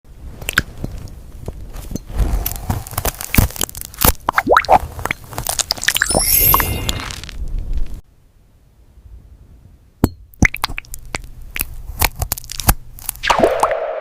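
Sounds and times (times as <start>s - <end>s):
gel plugs popping wetly: 3.0s - 4.8s, 10.3s - 13.7s
glassy tinkle: 6.0s - 7.2s.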